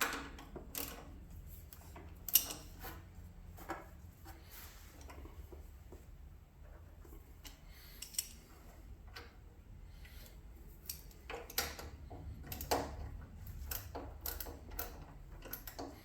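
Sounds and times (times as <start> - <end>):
hand tools and metal parts clicking: 0.0 - 3.0, 7.4 - 8.4, 10.1 - 16.0.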